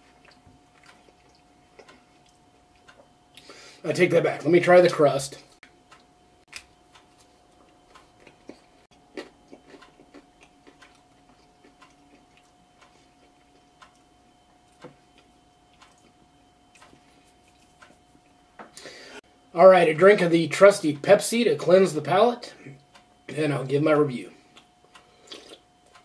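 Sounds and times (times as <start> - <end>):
crunching and chewing crust: 0.0 - 3.6, 5.9 - 18.4, 24.4 - 26.0.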